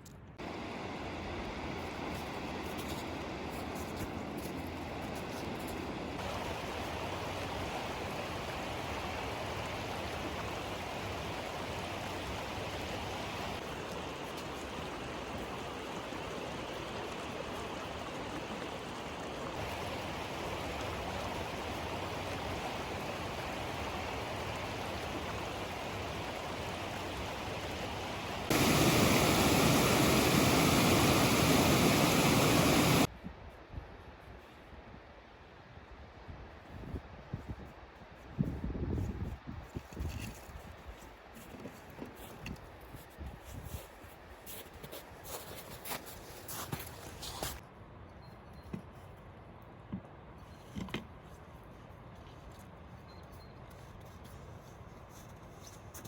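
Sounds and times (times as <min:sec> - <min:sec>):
running water rushing: 0:00.4 - 0:33.1.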